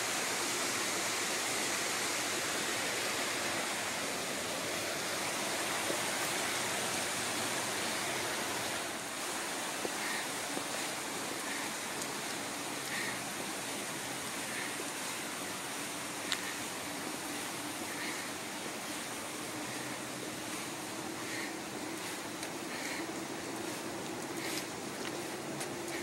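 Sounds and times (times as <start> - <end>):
flowing water rushing: 0.0 - 26.0
small ticks: 16.2 - 16.6.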